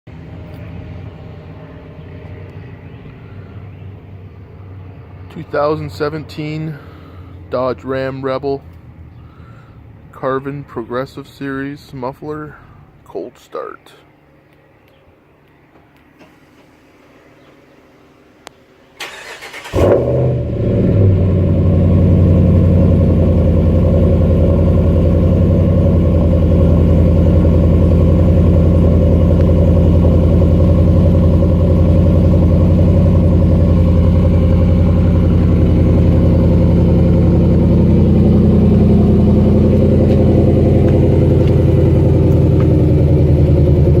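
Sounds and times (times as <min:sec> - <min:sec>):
engine starting and idling loudly: 0:18.9 - 0:44.0
engine cranking: 0:19.0 - 0:20.1.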